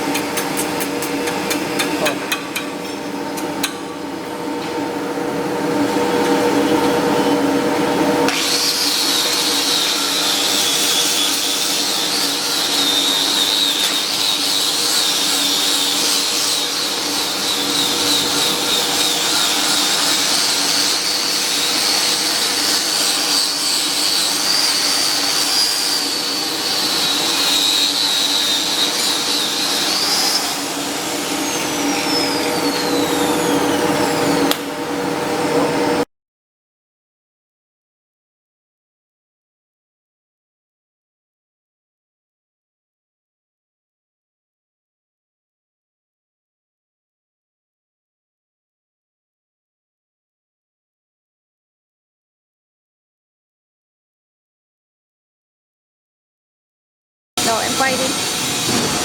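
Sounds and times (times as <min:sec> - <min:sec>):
welding arc hiss and crackle: 0:08.3 - 0:32.9, 0:57.4 - 0:59.0.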